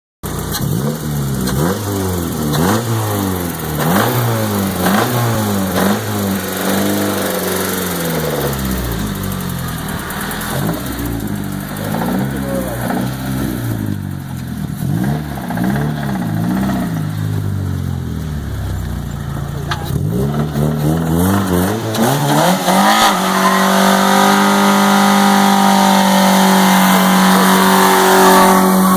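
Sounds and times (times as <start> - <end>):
car engine revving: 0.2 - 28.9.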